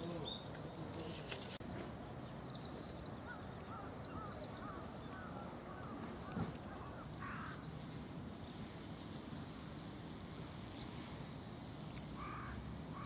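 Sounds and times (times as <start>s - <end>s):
birds calling: 0.0s - 7.6s.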